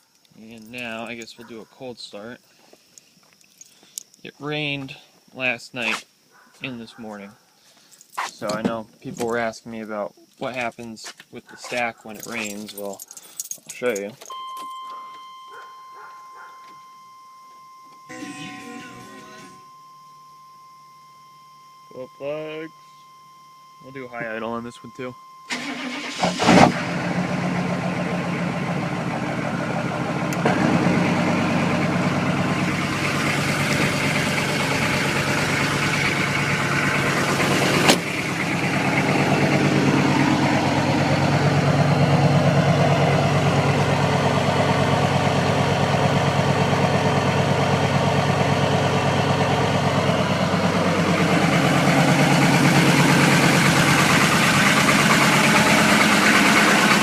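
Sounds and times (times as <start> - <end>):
diesel truck engine idling: 21.4 - 57.0.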